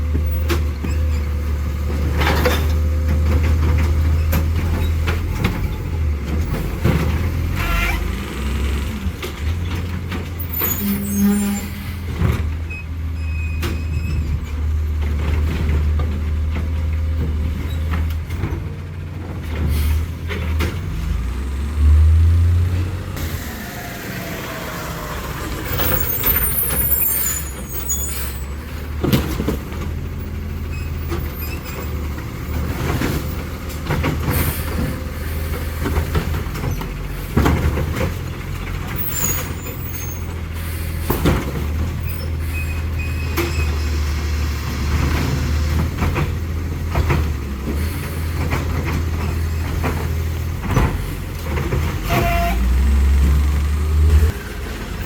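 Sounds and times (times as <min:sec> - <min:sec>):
garbage truck engine running: 0:00.0 - 0:55.0
air brakes hissing: 0:19.7 - 0:20.2, 0:23.2 - 0:29.0, 0:34.3 - 0:36.0, 0:39.2 - 0:41.3, 0:47.7 - 0:48.7.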